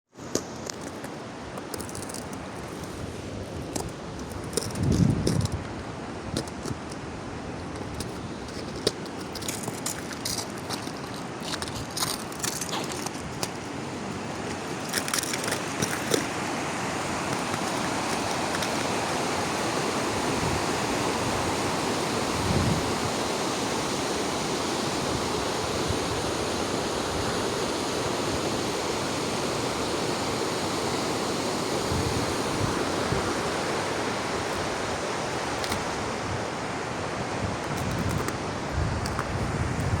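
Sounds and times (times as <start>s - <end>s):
mountain stream rushing: 0.2s - 40.0s
wind gusts hitting microphone: 3.3s - 6.8s, 16.4s - 40.0s.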